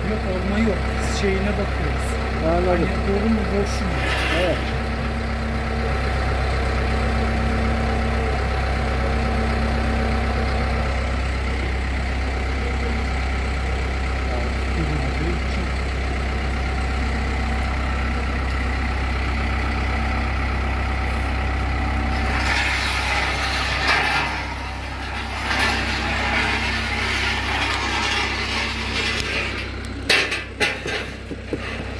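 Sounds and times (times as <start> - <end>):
engine idling: 0.0 - 31.9
loud clattering with sharp knock: 25.4 - 31.9.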